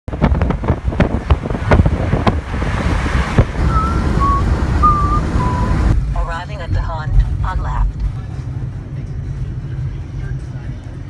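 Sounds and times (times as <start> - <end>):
wind buffeting microphone: 0.1 - 6.2
low rumble: 0.1 - 11.0
short steady tones: 3.4 - 6.0.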